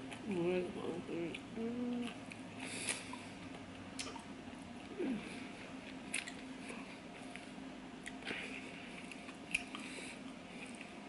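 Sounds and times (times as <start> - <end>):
person chewing: 1.3 - 11.0
wet mouth clicks: 4.0 - 4.2.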